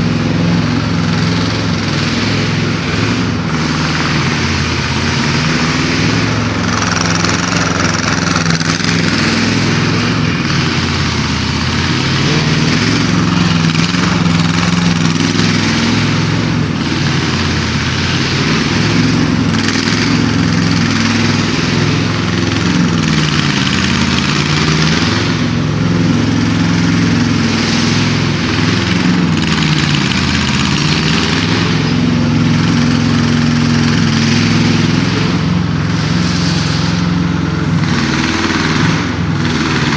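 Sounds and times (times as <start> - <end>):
excavator engine running: 0.0 - 39.9
hydraulic hiss: 33.5 - 39.4.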